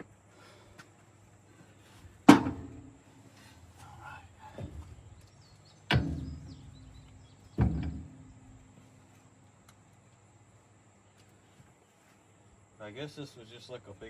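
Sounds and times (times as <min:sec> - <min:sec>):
light knocks and scraping: 0:01.6 - 0:10.1
heavy metal clanks: 0:04.4 - 0:08.7.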